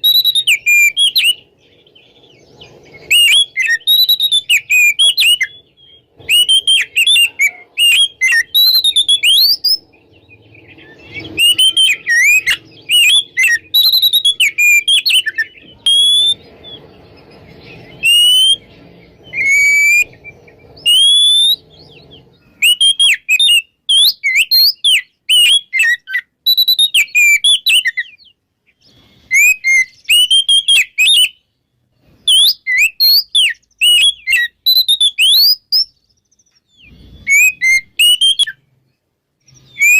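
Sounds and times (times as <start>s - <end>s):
bird singing whistled phrases: 0.0s - 31.5s, 32.2s - 38.7s, 39.5s - 39.9s.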